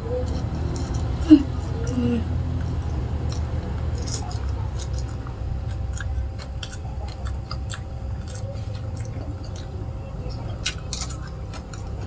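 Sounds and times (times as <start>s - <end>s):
chewing crunchy food: 0.0s - 12.0s
steady low hum: 0.0s - 12.0s.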